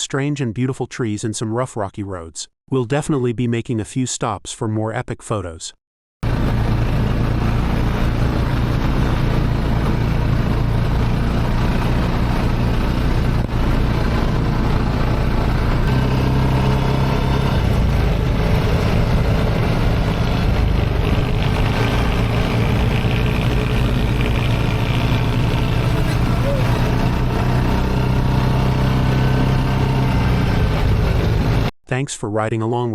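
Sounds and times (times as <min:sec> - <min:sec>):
buggy engine running: 0:06.2 - 0:31.7.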